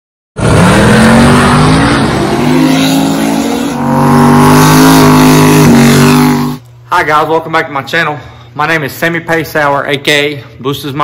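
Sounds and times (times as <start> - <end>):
racing car engine revving: 0.4 - 6.6.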